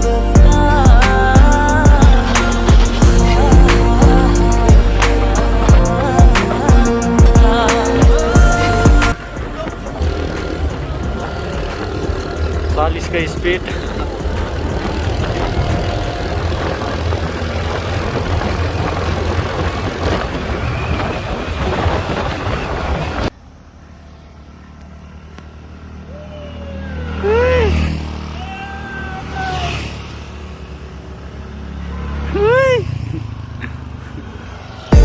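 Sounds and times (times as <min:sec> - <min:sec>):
scooter engine running: 0:00.0 - 0:35.0
wind buffeting microphone: 0:13.5 - 0:23.3.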